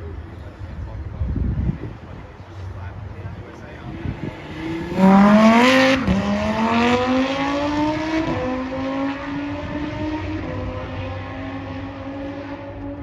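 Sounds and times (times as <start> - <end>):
car engine accelerating hard: 3.4 - 13.0.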